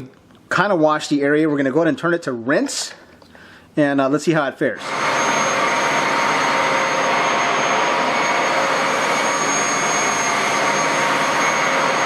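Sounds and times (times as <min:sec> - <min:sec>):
carpet washer motor running: 0:04.8 - 0:12.0.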